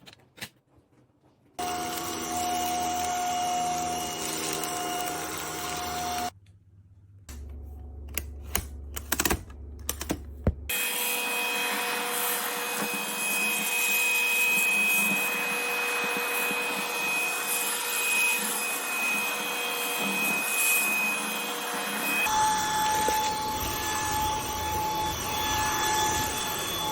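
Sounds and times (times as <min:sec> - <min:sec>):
cordless vacuum cleaner running: 0:01.6 - 0:06.3, 0:10.7 - 0:26.9.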